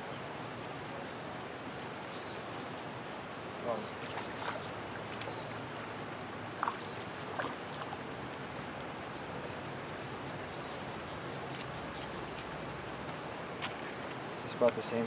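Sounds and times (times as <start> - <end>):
flowing creek water: 0.0 - 15.0.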